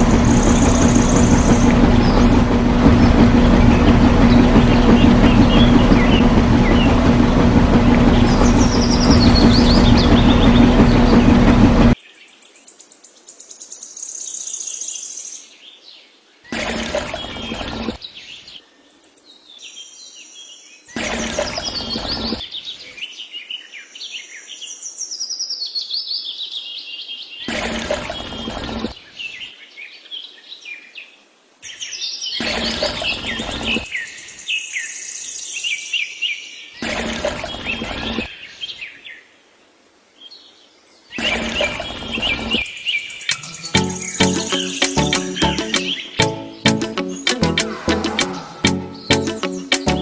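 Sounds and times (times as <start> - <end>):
rush of noise: 0.0 - 12.0, 43.3 - 50.0
birds chirping and singing: 41.2 - 50.0.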